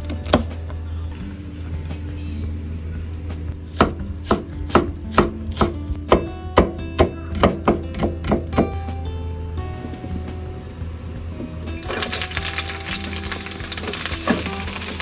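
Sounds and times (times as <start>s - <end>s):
soft background music: 0.0s - 15.0s
knife chopping on cutting board: 3.7s - 8.8s.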